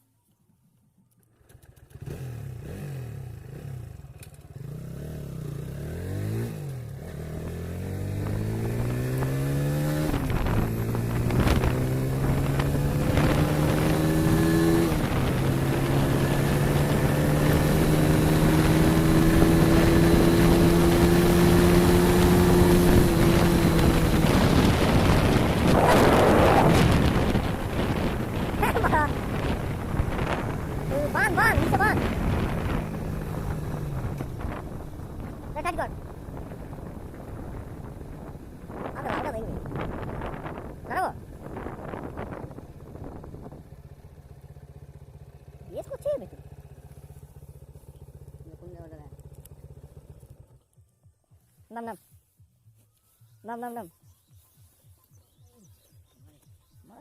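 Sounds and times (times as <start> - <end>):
motorcycle engine accelerating: 1.0 - 57.0
wind rush on microphone: 8.2 - 43.8.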